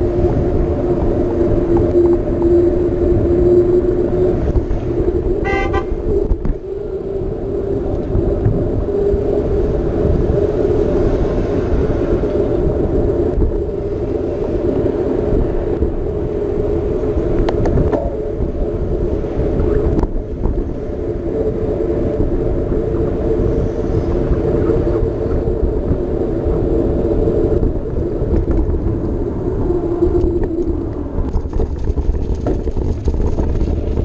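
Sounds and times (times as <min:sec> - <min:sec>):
bike tyres on path: 0:00.0 - 0:34.0
wind on microphone: 0:00.0 - 0:34.0
short horn-like toot: 0:05.4 - 0:06.0.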